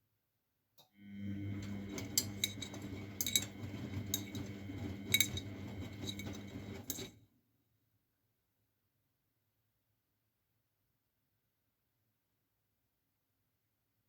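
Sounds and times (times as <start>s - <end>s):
washing machine motor hum: 1.0s - 7.2s.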